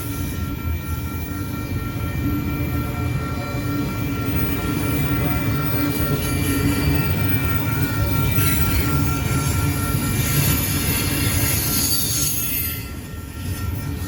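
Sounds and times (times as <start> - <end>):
train wheels rumbling on rails: 0.0 - 14.0
wheels squealing and hissing: 10.2 - 12.9.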